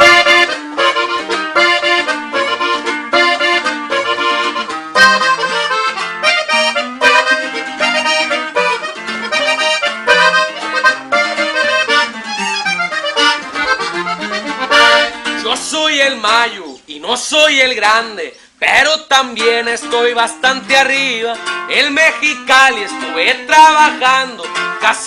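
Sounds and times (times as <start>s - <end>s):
bass line: 0.0s - 16.4s
accordion melody: 0.0s - 16.8s, 19.2s - 25.0s.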